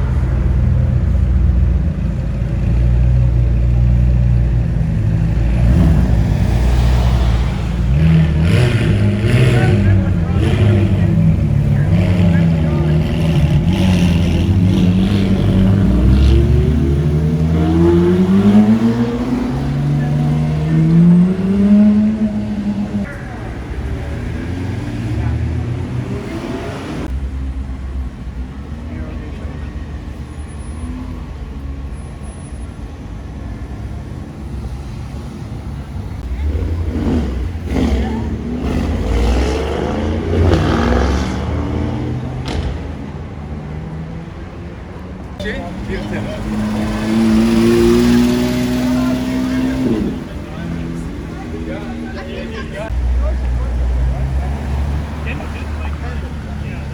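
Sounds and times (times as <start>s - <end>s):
car engine accelerating: 0.0s - 32.3s, 33.2s - 56.9s
car engine accelerating past: 5.4s - 23.1s, 45.6s - 52.2s.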